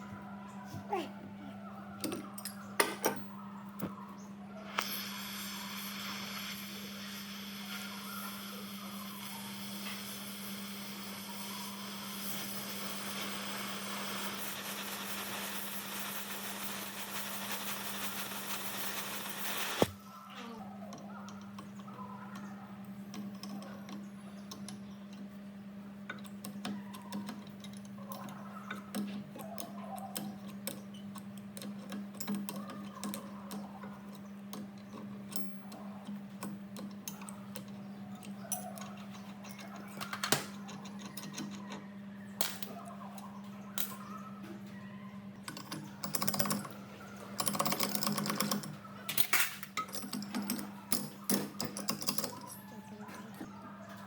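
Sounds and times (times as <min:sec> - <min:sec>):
steady hiss: 0:04.8 - 0:19.9
clicks and taps on metal parts: 0:23.1 - 0:25.4, 0:26.1 - 0:41.8.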